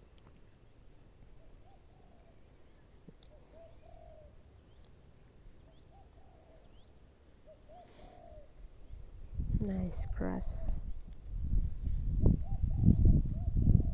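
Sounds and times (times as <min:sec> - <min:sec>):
faint dove cooing: 0:01.4 - 0:02.4, 0:03.2 - 0:04.5, 0:05.7 - 0:08.6, 0:12.4 - 0:13.9.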